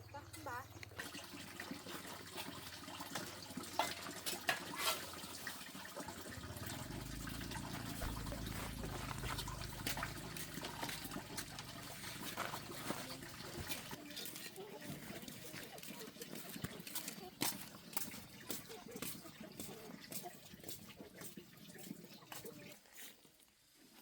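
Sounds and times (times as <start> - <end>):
water splashing and trickling: 0.0 - 23.3
low rumble: 6.4 - 11.8.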